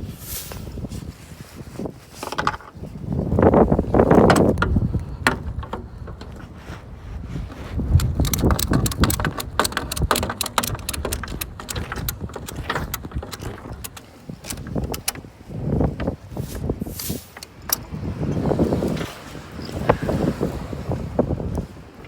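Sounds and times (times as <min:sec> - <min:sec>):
wind: 0:00.0 - 0:22.0
ratchet strap clicking: 0:07.8 - 0:15.3, 0:16.0 - 0:18.4.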